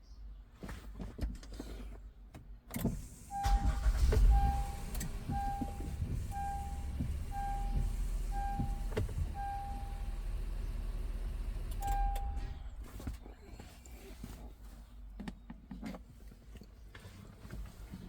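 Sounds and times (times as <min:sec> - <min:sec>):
car engine starting and idling: 0:02.8 - 0:13.4
car warning chime beeping: 0:03.3 - 0:10.8, 0:11.6 - 0:12.6.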